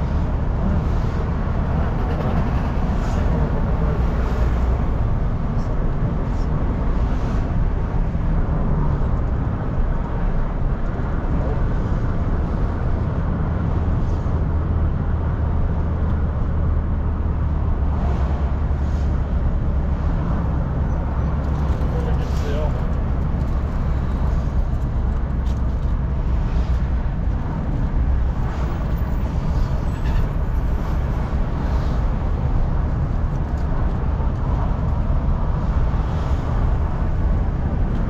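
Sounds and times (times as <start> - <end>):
car engine and tyre rumble: 0.0 - 38.0.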